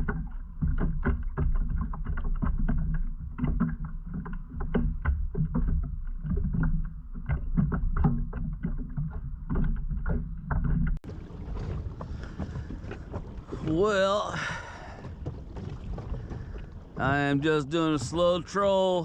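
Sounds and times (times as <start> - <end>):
knocks and clicks of hull and gear: 0.0 - 19.0
low rumble: 10.9 - 19.0.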